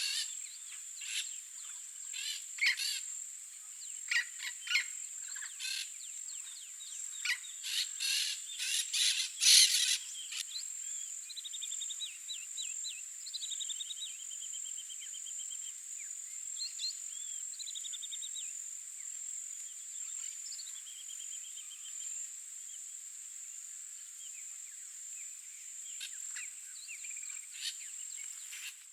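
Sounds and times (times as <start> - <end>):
birds calling harshly: 2.1 - 3.0, 4.1 - 10.4, 27.2 - 28.8.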